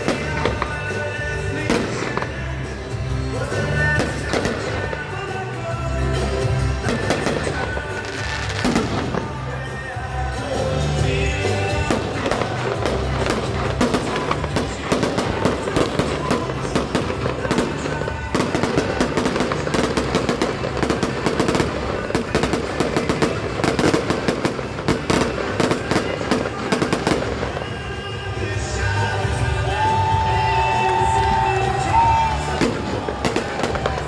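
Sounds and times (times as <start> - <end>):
fireworks bangs and crackles: 0.0 - 34.0
music playing: 0.0 - 34.0.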